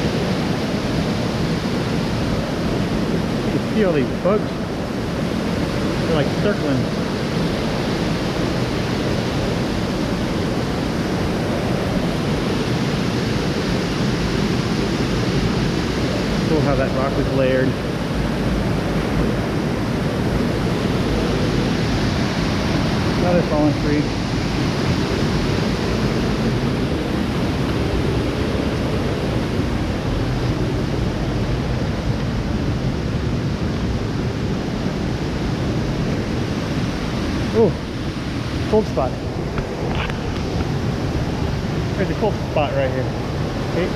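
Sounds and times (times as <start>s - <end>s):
creek water rushing: 0.0s - 43.9s
water cascading down rocky stream: 22.6s - 25.0s.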